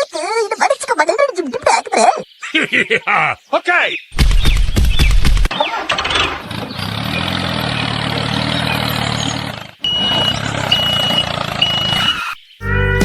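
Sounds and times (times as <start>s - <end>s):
truck engine running: 5.5s - 12.3s
reversing alarm beeps: 8.7s - 12.4s.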